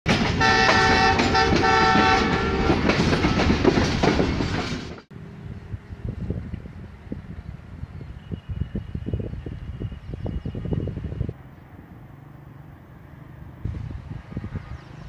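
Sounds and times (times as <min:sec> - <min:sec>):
passing train rumble and clatter: 0:00.1 - 0:15.0
multi-tone train horn: 0:00.3 - 0:03.4, 0:14.1 - 0:15.0.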